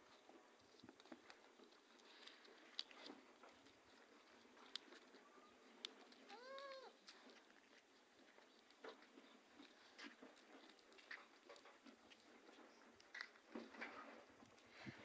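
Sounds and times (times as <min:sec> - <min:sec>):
faint ticks and clicks: 0:00.1 - 0:15.0
cat meowing: 0:06.3 - 0:07.0.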